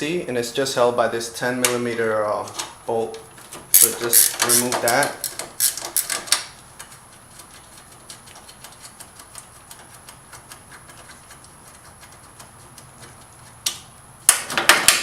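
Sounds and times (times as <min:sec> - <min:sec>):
ratchet wrench clicking: 0:03.7 - 0:06.4.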